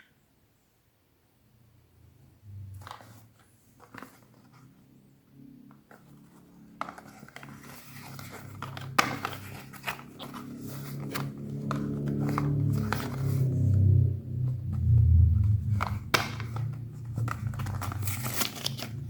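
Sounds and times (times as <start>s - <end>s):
packaging crinkling and scraping: 5.9s - 13.8s, 15.6s - 19.0s.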